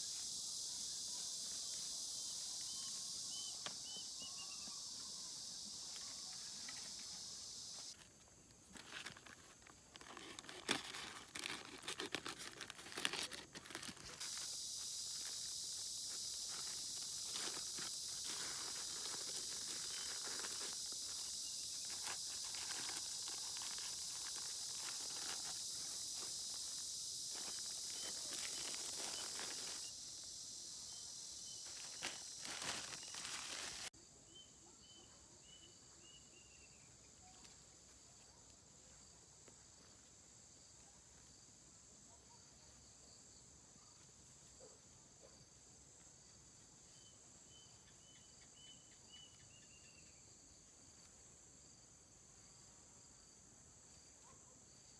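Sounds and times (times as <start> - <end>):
steady high hiss: 0.0 - 8.0, 14.1 - 33.9
high insect chirps: 0.0 - 54.9
insect chorus: 0.0 - 54.9.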